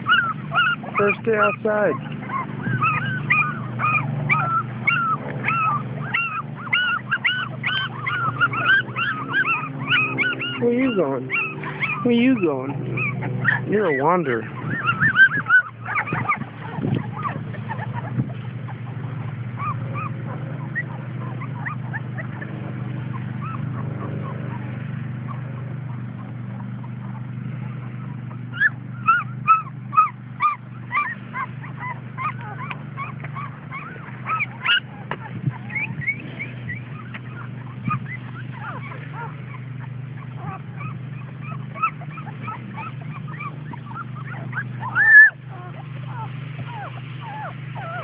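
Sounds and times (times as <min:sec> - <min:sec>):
puppies whimpering: 0:00.0 - 0:48.0
steady low hum: 0:00.0 - 0:48.0.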